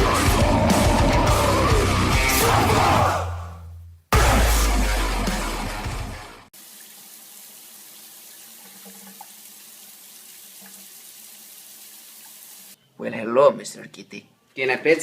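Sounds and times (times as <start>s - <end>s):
loud music: 0.0s - 6.5s
water running from a tap: 6.5s - 12.8s.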